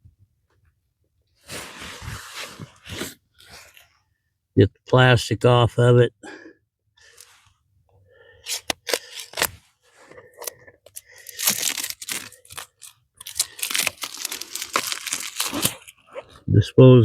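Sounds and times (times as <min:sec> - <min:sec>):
plastic wrapping tearing and crinkling: 0:08.5 - 0:09.6, 0:10.4 - 0:16.1.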